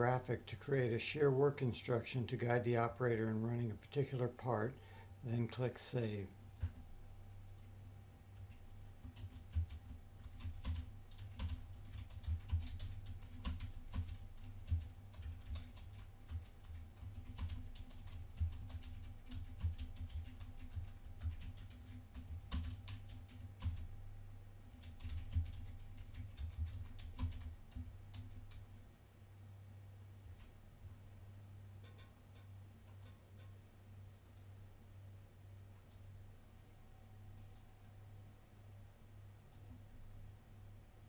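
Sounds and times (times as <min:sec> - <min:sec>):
low electrical hum: 0:00.0 - 0:41.0
keyboard typing clicks: 0:08.4 - 0:23.9, 0:31.8 - 0:33.5, 0:35.7 - 0:36.0.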